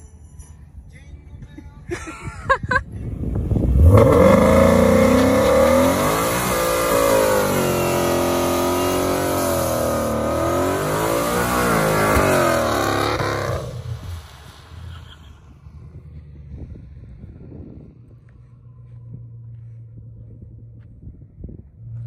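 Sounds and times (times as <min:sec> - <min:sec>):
car engine revving high: 0:03.4 - 0:16.4.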